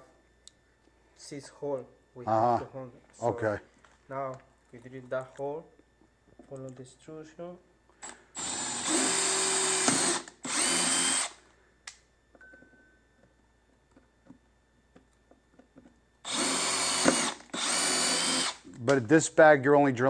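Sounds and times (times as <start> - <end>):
electric drill running: 8.0 - 11.4, 16.2 - 18.7.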